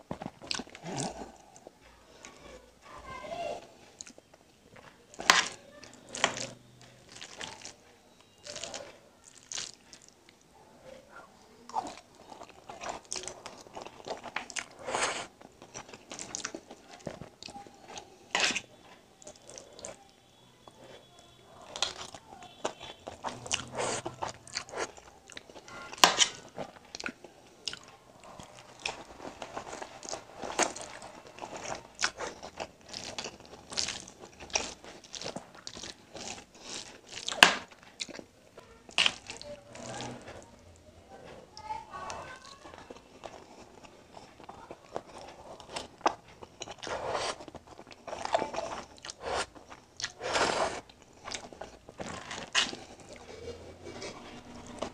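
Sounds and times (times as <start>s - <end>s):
wet chewing and mouth smacks: 0.1s - 1.8s, 5.2s - 10.5s, 21.6s - 38.3s, 38.9s - 40.2s, 42.8s - 54.9s.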